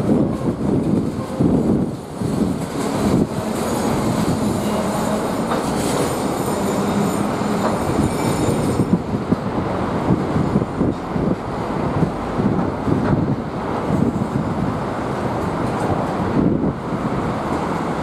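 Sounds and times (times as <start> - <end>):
freight wagons rumbling on rails: 0.0 - 18.0
high wheel squeal: 2.7 - 9.0.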